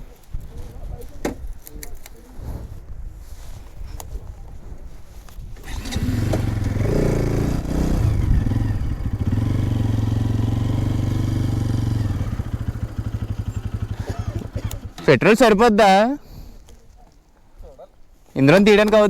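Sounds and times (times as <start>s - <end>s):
motorcycle engine revving: 5.6s - 15.2s.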